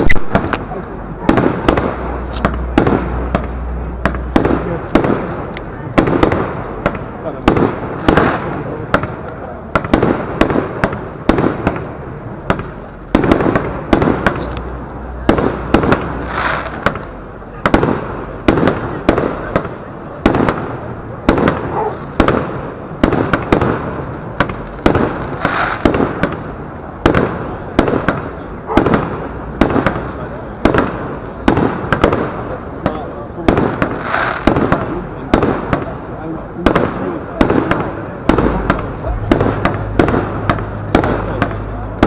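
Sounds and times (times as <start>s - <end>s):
fireworks bangs: 0.0s - 42.0s
echoing rumble: 35.5s - 42.0s.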